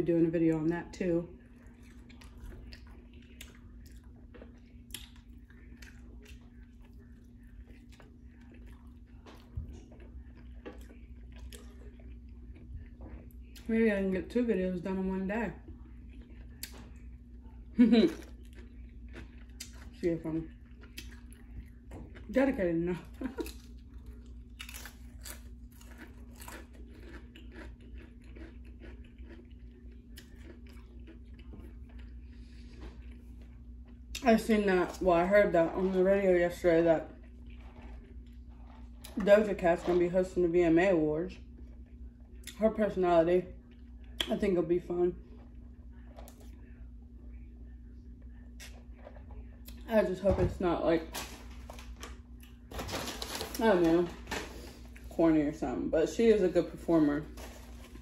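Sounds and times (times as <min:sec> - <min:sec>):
faint low hum: 0:00.0 - 0:58.0
person chewing a sandwich: 0:01.4 - 0:13.7, 0:15.6 - 0:22.4, 0:23.1 - 0:34.2, 0:37.1 - 0:39.2, 0:43.6 - 0:44.3.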